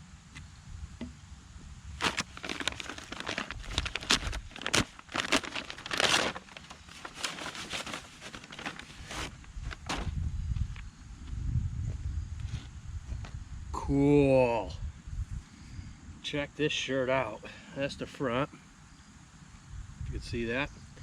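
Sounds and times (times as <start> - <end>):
package wrapping tearing and crinkling: 2.0 - 10.1.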